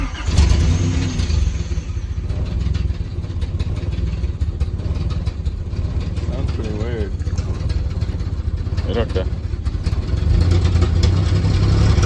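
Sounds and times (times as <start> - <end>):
engine through loud exhaust: 0.0 - 12.0.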